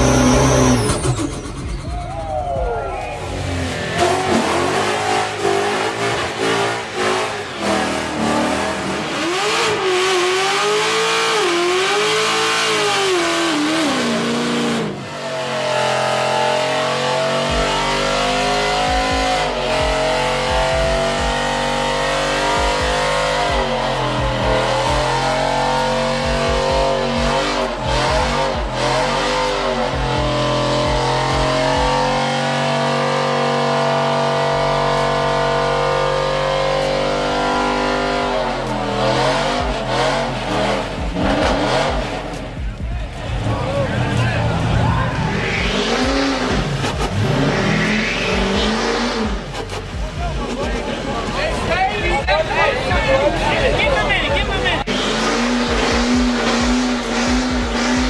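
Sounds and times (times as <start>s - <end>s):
tyres squealing: 0.0s - 11.7s, 34.3s - 58.0s
truck engine at high revs: 0.0s - 58.0s.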